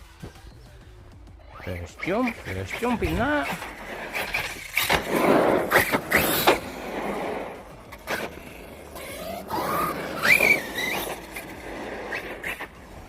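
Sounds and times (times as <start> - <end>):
electric motor whine revving: 2.0 - 13.0
rc truck landing clatter: 2.9 - 12.8.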